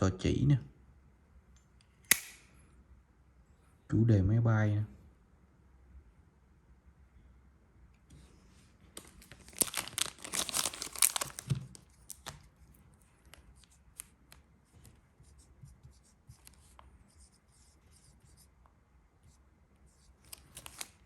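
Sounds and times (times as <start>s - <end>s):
crinkling rustle: 8.9s - 14.4s, 20.2s - 21.0s.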